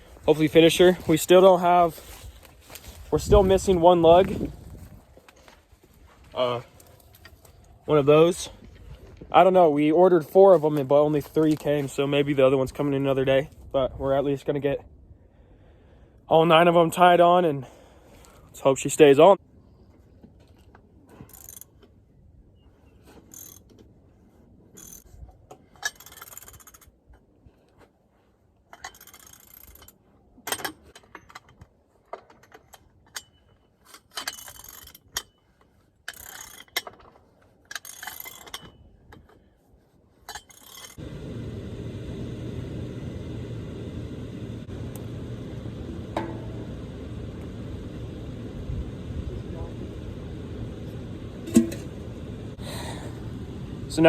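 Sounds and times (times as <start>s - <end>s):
steady low hum: 41.0s - 54.0s.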